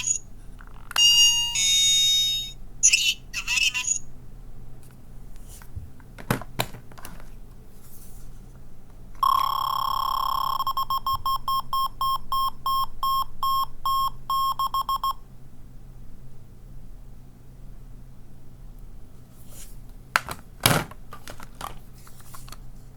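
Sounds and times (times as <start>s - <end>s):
high buzzer-like beeps: 9.2s - 15.2s.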